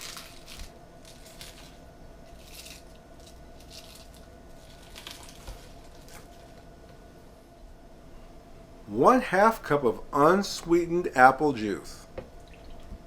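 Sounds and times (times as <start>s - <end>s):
leaves rustling and crinkling: 0.0s - 6.6s.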